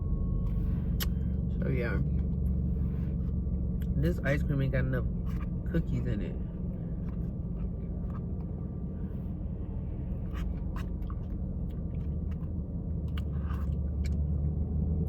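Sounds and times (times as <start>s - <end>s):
car interior rumble: 0.0s - 15.0s
person chewing: 0.8s - 1.2s, 7.0s - 8.6s, 10.1s - 14.4s.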